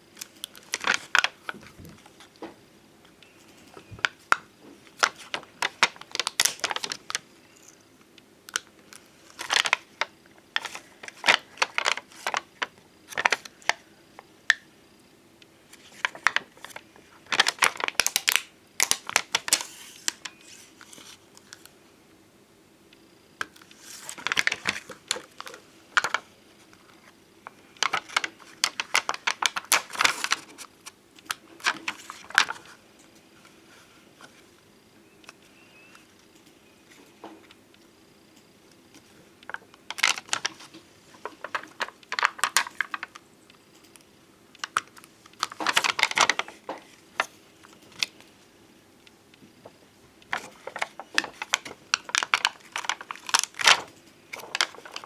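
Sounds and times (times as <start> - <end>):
stickers clicking and crinkling: 0.2 - 2.5, 3.2 - 7.8, 8.5 - 13.8, 15.8 - 21.7, 23.4 - 32.8, 39.0 - 43.2, 43.8 - 48.2, 50.2 - 55.0.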